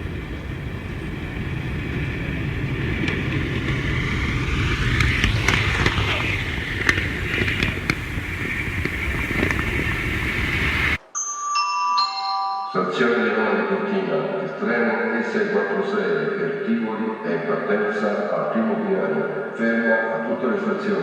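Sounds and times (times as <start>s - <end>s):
wheels clicking over rail joints: 0.0s - 10.4s
model train rolling rumble: 0.0s - 11.0s.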